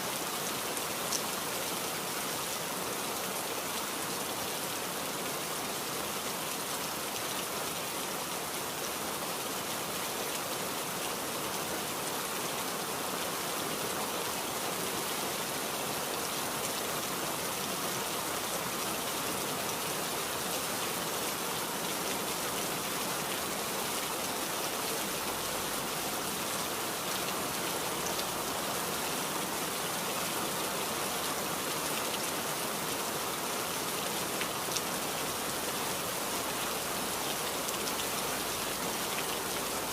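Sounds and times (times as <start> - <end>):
rain patter: 0.0 - 39.9.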